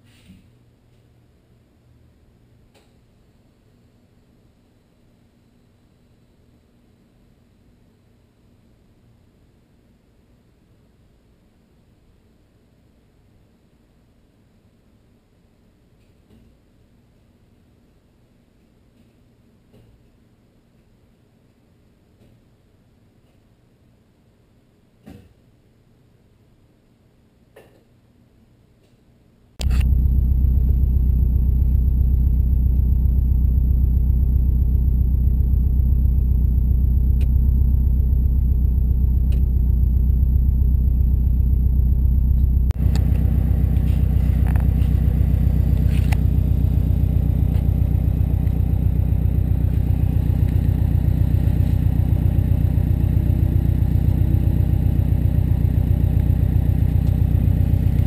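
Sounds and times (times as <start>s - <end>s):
car engine idling: 29.6s - 58.0s.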